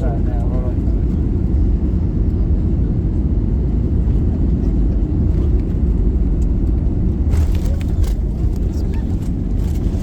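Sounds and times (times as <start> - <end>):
airplane cabin rumble: 0.0 - 10.0.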